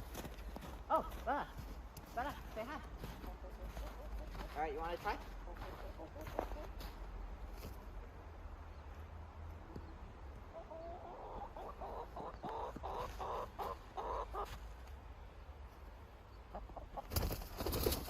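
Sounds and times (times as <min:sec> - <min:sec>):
chicken clucking: 0:03.1 - 0:07.0, 0:10.5 - 0:14.6, 0:16.3 - 0:18.0.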